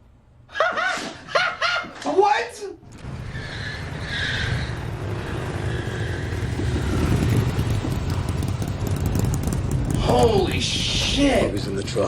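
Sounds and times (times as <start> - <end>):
truck engine rumbling: 2.8 - 12.0.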